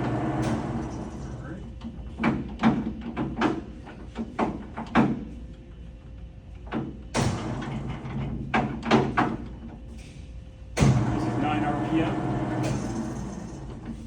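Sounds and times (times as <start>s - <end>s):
machine drive humming: 0.0s - 2.2s, 10.7s - 14.0s
mechanical clunks and knocks: 1.8s - 5.4s, 6.6s - 11.4s.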